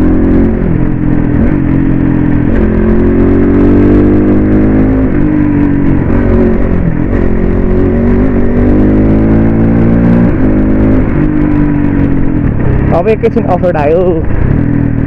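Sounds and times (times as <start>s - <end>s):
dirt bike engine revving: 0.0s - 11.4s.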